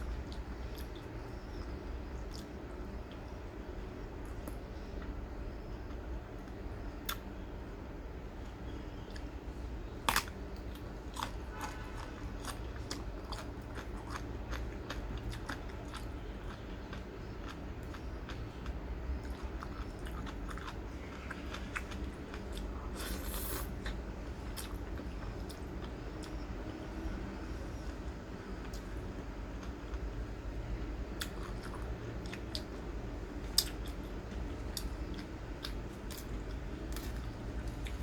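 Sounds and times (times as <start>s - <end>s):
person chewing crunchy food: 0.0s - 3.3s, 10.0s - 26.8s, 31.1s - 38.0s.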